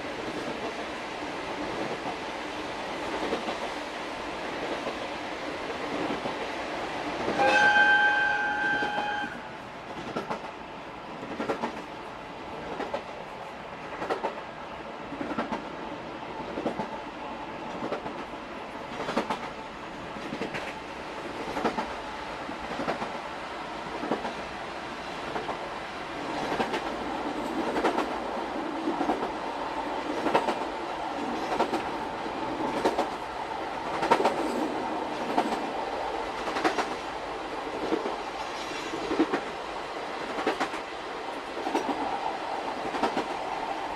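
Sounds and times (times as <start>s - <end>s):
locomotive air whistle: 7.3s - 9.6s
train wheels clacking over rail joints: 26.3s - 28.2s, 30.1s - 33.2s, 33.8s - 37.0s, 37.8s - 39.5s, 40.2s - 40.9s, 41.6s - 43.5s.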